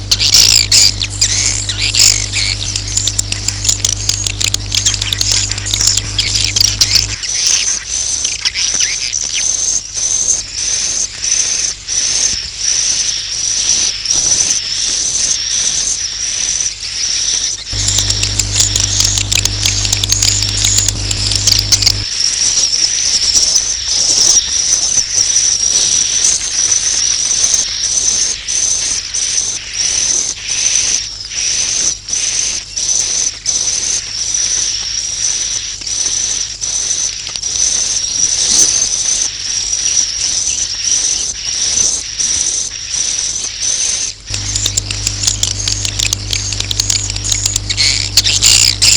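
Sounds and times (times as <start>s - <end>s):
low hum: 0.0s - 7.2s, 17.7s - 22.1s, 44.3s - 48.9s
swiftlet twittering chirps: 0.0s - 7.6s, 17.8s - 23.0s, 44.3s - 48.9s.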